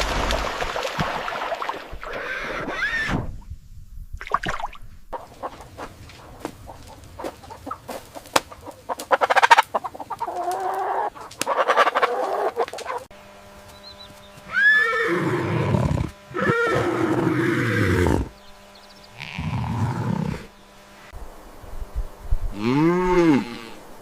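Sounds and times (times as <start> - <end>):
farm animal calls: 5.2 - 13.1, 13.7 - 20.8.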